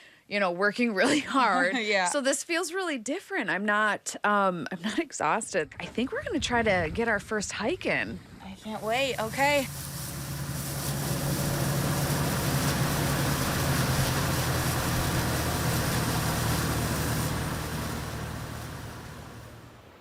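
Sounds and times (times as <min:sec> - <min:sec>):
boat engine droning: 0:06.0 - 0:20.0.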